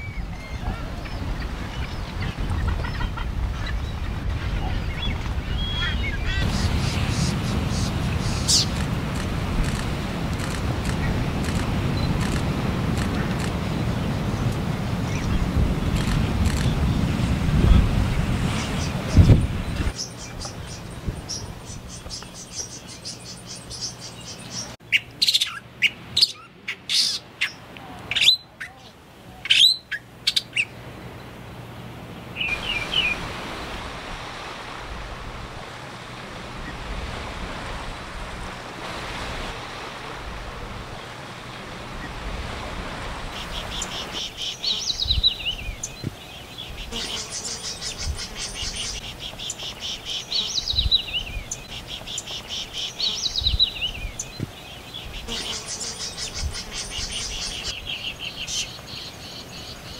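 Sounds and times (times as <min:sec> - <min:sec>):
background hiss: 0:05.3 - 0:59.9.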